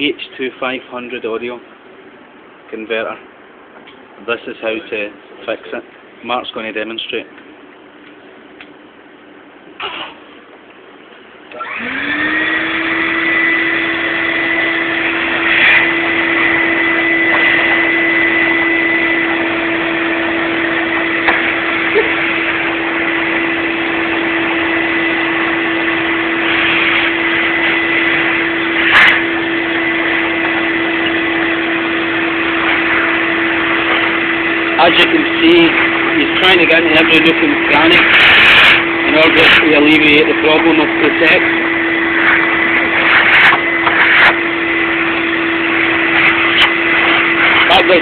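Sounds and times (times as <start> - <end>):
vacuum cleaner running: 11.5 - 48.0.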